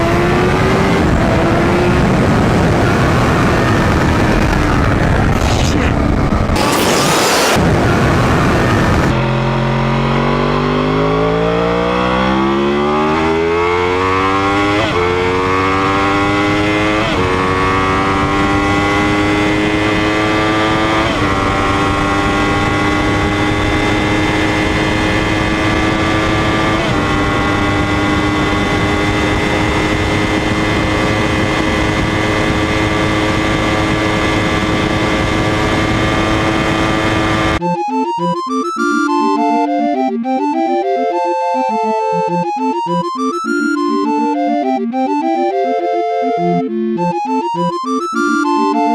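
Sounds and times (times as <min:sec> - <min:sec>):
motorcycle engine accelerating: 0:00.0 - 0:37.6
loud rushing noise: 0:05.0 - 0:09.2.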